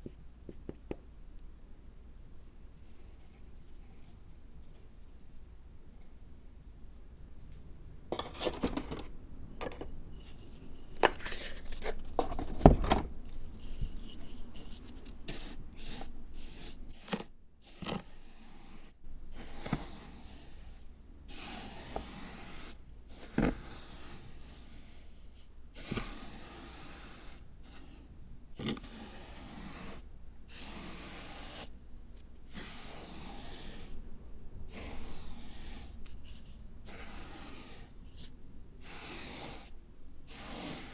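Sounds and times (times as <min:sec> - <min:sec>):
scraping and rubbing: 0:08.1 - 0:15.6.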